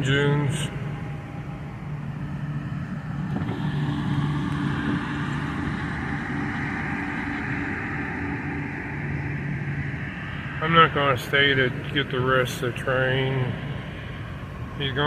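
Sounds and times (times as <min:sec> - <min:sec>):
low engine hum: 0:00.0 - 0:15.0
rushing noise: 0:00.0 - 0:15.0.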